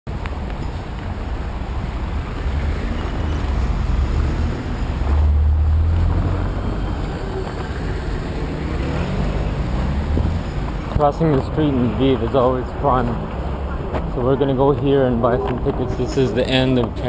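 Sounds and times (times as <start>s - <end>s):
traffic rumble: 0.1s - 17.0s
vehicle passing: 1.5s - 17.0s.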